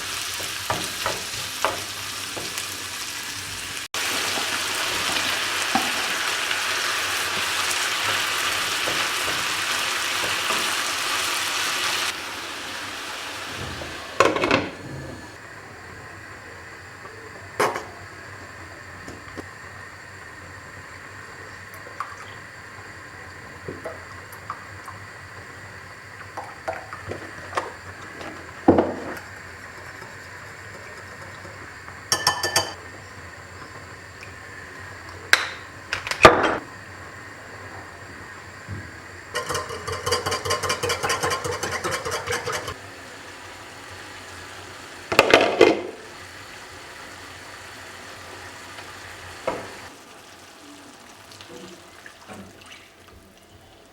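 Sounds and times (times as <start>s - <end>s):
dishes clattering: 13.6s - 15.3s, 29.8s - 32.8s, 39.3s - 42.8s
utensils and dishes clinking: 29.8s - 32.8s, 39.3s - 42.8s.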